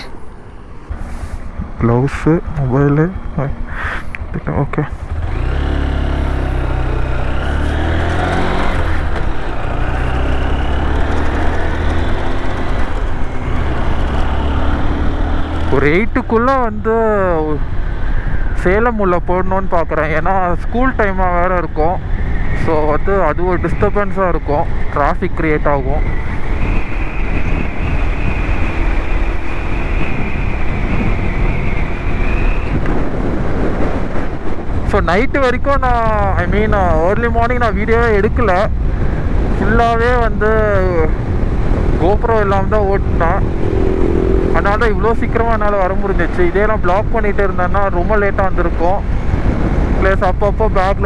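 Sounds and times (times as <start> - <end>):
motorcycle engine accelerating: 0.0 - 16.6, 26.0 - 34.8, 36.0 - 47.9
wind rush over microphone: 0.0 - 51.0
high-pitched whine: 41.8 - 47.0.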